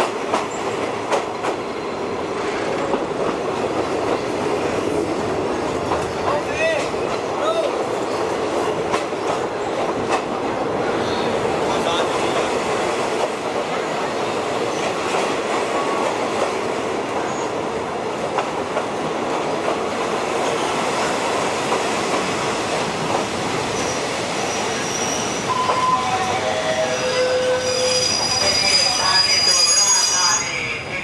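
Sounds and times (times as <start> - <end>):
train wheels on rails: 0.0 - 31.0.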